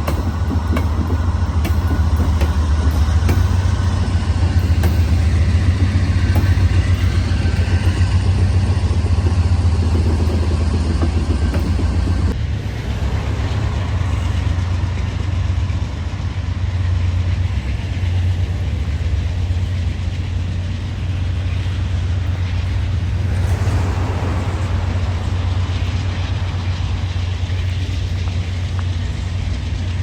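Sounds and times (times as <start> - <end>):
vehicle engine low rumble: 0.0 - 30.0
noisy wash: 21.0 - 30.0.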